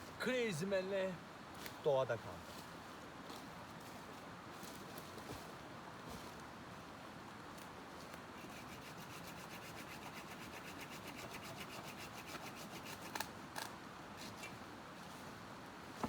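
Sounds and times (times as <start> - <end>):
hand tool rasping on wood: 8.4 - 13.2.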